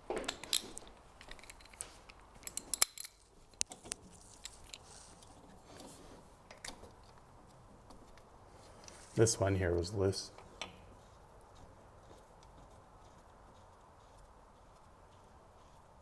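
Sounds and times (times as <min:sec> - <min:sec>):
hand tools clicking on metal: 0:00.2 - 0:04.9.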